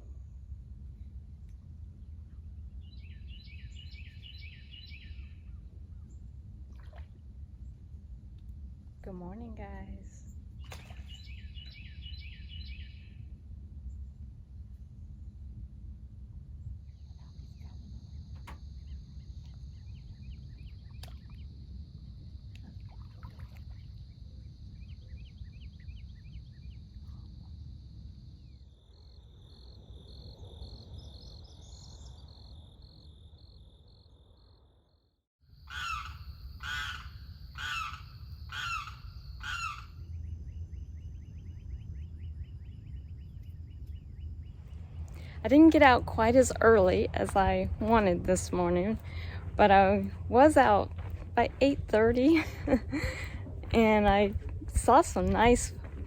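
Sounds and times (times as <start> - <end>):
low wind rumble: 0.0 - 34.9, 35.6 - 56.0
faint bird chirps: 2.8 - 6.2, 9.8 - 13.3
high insect drone: 16.4 - 53.3
large bird calling loudly: 35.6 - 39.9.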